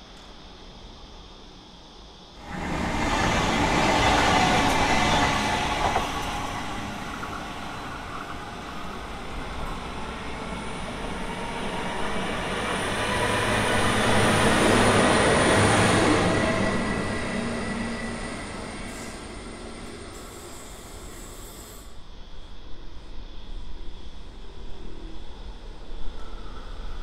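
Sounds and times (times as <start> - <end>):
diesel railcar engine drone: 2.2 - 26.9
train wheel noise: 2.4 - 21.9.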